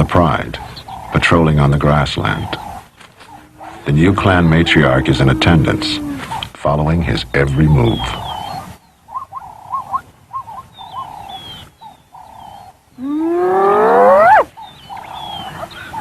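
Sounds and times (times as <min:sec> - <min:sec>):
hyena short calls: 0:03.2 - 0:06.4
hyena rising whoop: 0:03.4 - 0:06.4, 0:13.0 - 0:14.5.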